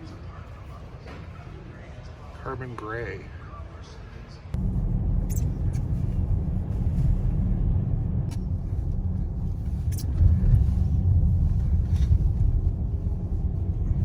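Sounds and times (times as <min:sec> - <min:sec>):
car engine and tyres rumbling: 0:04.6 - 0:14.0.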